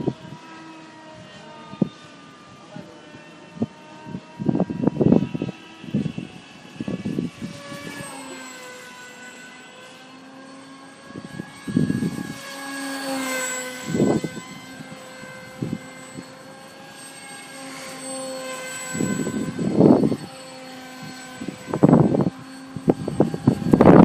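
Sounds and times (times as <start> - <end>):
wind rumble on microphone: 0.0 - 2.1, 2.7 - 8.2, 11.0 - 16.6, 18.8 - 24.0
model airplane motor whining: 0.0 - 24.0.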